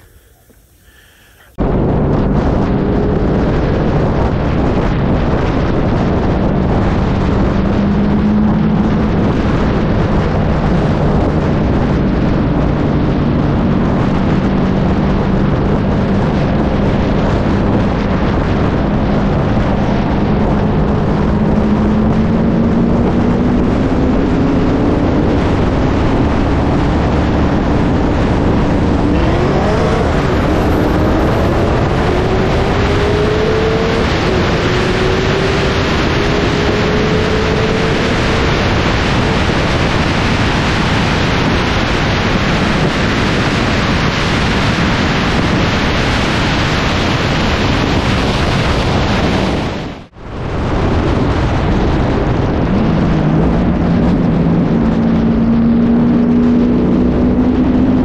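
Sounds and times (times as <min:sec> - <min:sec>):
car engines at full throttle: 0:00.0 - 0:58.0
wind noise on microphone: 0:00.0 - 0:58.0.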